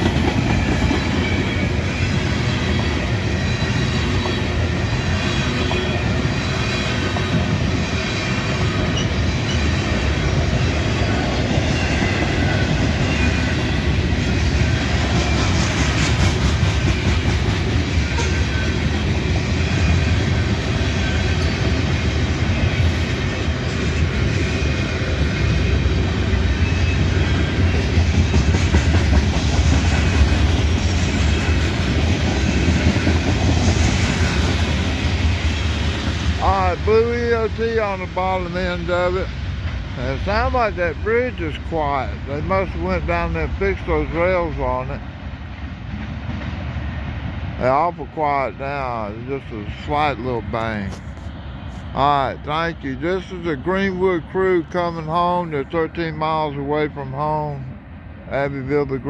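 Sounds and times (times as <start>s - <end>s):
freight train wheels clacking: 0.0s - 46.8s.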